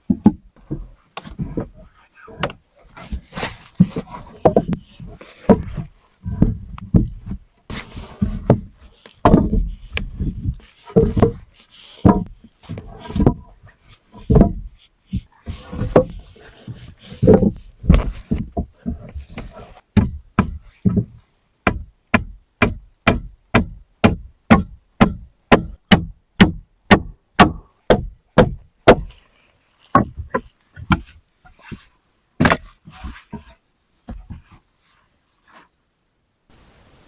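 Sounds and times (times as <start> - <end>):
hand tool striking wood: 0.0 - 1.7, 3.4 - 13.5, 14.2 - 29.2, 29.9 - 34.5.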